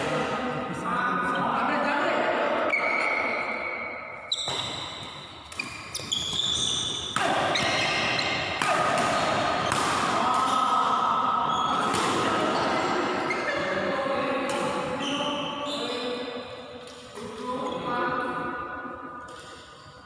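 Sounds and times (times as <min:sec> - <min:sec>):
shoe squeaks: 0:02.7 - 0:08.5, 0:12.5 - 0:13.8, 0:14.9 - 0:16.2
racket hitting shuttlecock: 0:03.6 - 0:11.0, 0:11.7 - 0:13.8, 0:14.4 - 0:15.0, 0:18.2 - 0:20.0
voices: 0:07.2 - 0:18.4.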